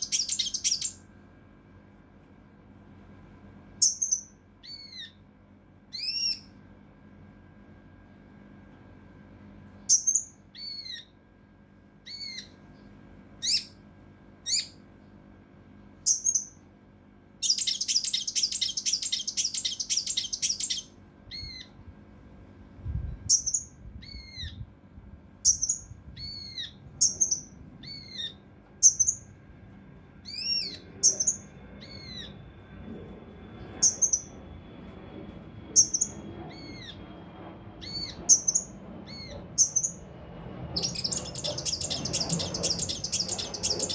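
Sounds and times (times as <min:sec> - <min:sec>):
bird rapid harsh notes: 0:00.0 - 0:01.0, 0:17.4 - 0:20.9, 0:40.8 - 0:43.9.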